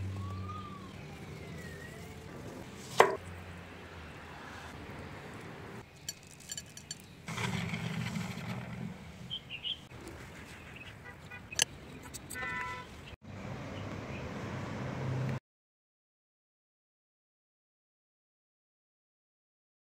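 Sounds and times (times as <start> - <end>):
distant traffic rumble: 0.0 - 15.4
bird chirps: 9.3 - 12.2.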